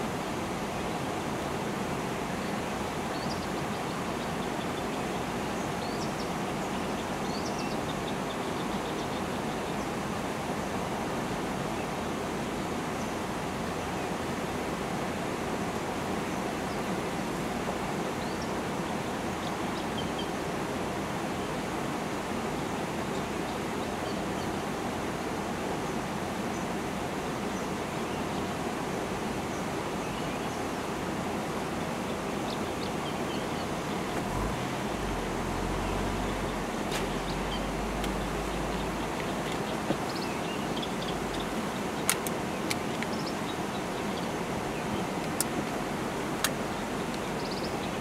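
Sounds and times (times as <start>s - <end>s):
small birds chirping: 2.4s - 10.1s, 31.8s - 48.0s.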